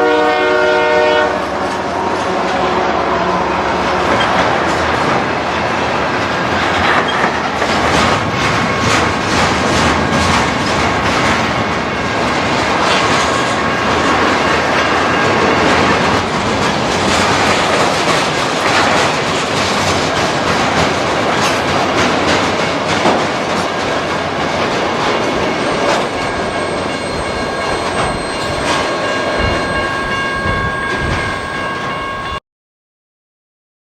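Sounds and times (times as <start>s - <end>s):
train wheels clicking over rail joints: 4.0s - 31.8s.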